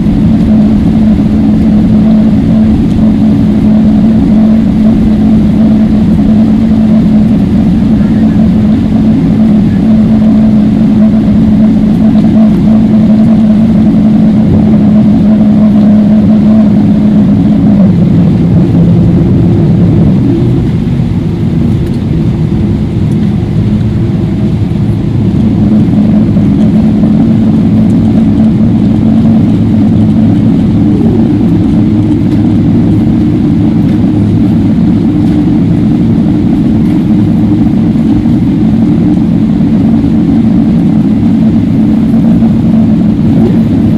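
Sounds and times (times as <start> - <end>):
airplane cabin drone: 0.0 - 43.9.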